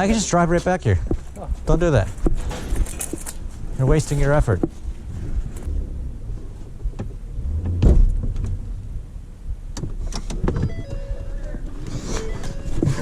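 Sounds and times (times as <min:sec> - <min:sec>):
vehicle engine running low: 0:04.9 - 0:10.5
loud knock: 0:07.4 - 0:08.6.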